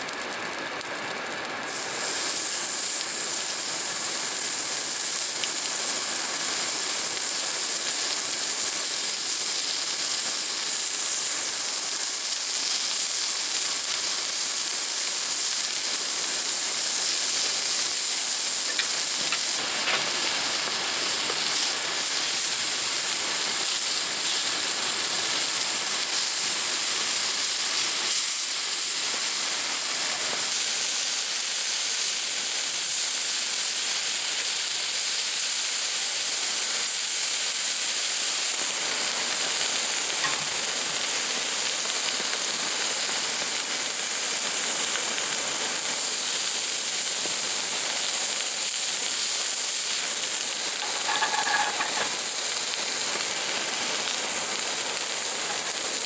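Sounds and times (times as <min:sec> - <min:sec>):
rain falling hiss: 0:00.0 - 0:56.0.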